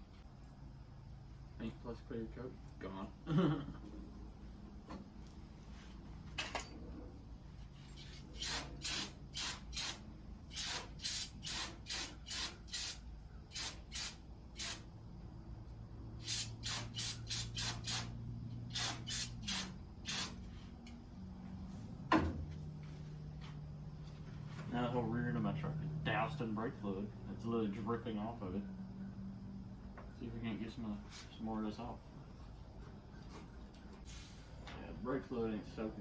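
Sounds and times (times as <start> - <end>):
spray can hissing bursts: 8.0 - 14.9, 16.2 - 20.4.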